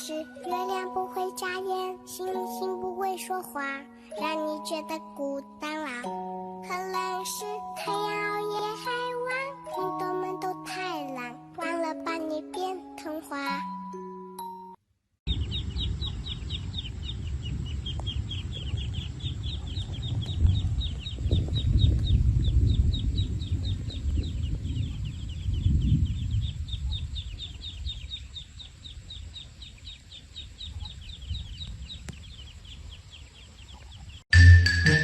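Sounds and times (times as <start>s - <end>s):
bird chirping: 15.3s - 34.6s.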